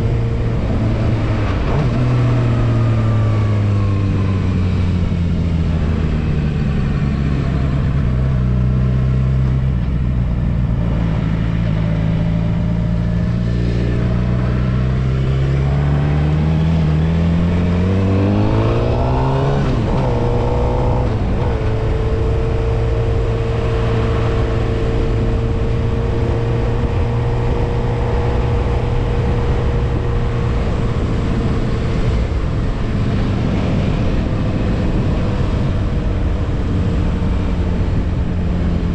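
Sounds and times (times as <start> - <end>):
motorcycle engine revving: 10.6 - 38.9.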